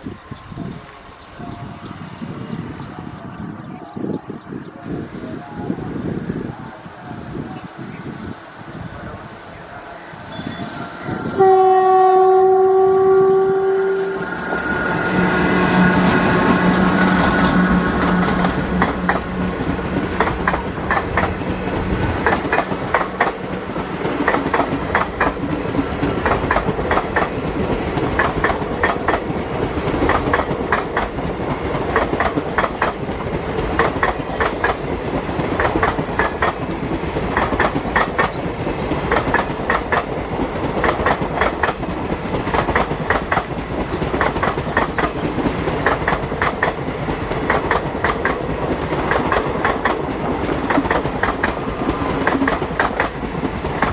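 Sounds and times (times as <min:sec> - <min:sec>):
train horn blast: 0:09.9 - 0:19.8
train wheels clicking over rail joints: 0:14.2 - 0:53.9.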